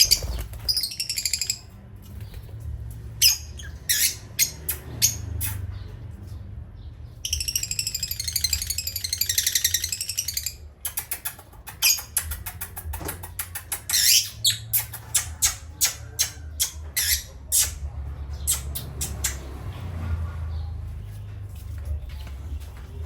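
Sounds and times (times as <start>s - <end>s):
parrots chirping in a high trill: 0.0s - 1.7s, 3.2s - 5.6s, 7.2s - 10.6s, 13.6s - 17.8s
parrots squawking: 0.0s - 1.7s, 3.2s - 5.6s, 7.2s - 17.8s.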